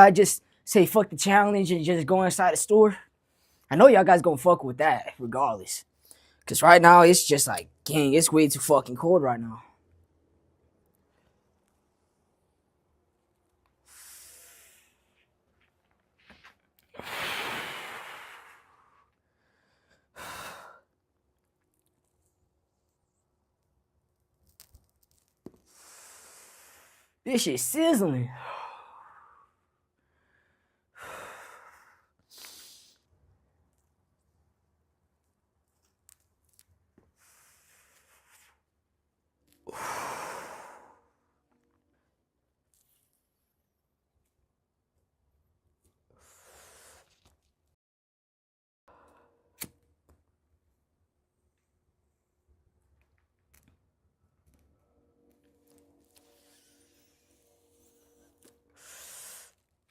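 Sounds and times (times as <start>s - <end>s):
person inhaling smoke: 13.8s - 15.1s, 17.0s - 19.1s, 32.0s - 33.0s, 58.7s - 59.6s
long loud exhale: 17.0s - 19.0s, 58.8s - 59.6s.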